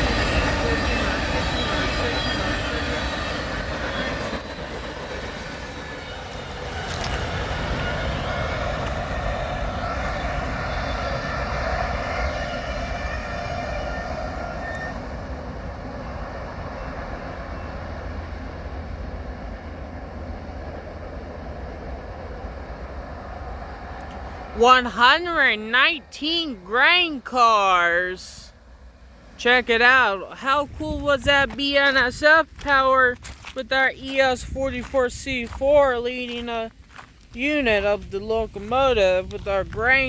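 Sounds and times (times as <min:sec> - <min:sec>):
train wheels rumbling and clattering: 0:00.0 - 0:24.6
high-pitched wheel squealing: 0:05.7 - 0:15.2.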